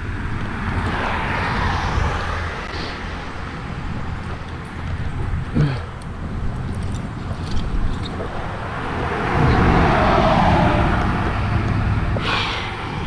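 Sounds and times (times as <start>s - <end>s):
vehicle driving past: 8.6s - 13.0s.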